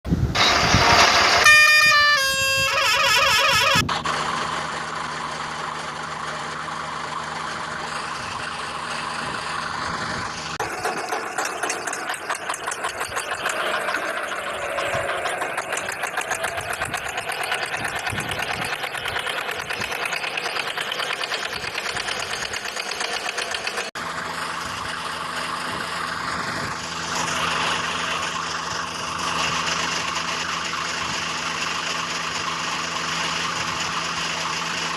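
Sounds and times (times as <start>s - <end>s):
diesel engines running: 0.0s - 34.9s
vehicle horn: 0.4s - 3.9s.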